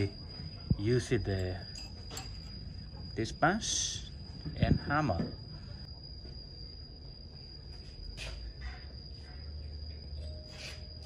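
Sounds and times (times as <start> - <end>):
high-pitched whine: 0.0 - 11.0
steel tools clinking on metal: 1.3 - 2.6.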